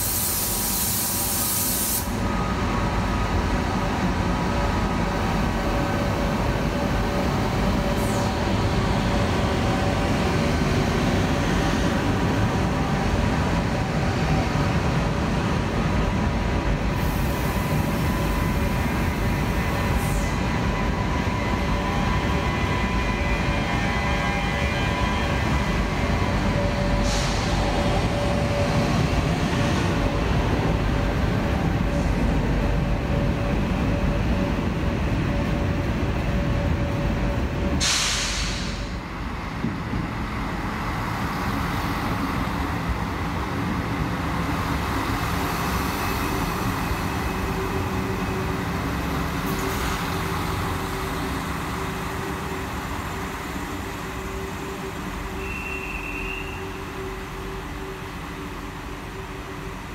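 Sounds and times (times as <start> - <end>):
compressed air hiss: 0.0 - 2.2, 27.0 - 27.6, 37.8 - 39.0
train rumble and hum: 0.0 - 59.9.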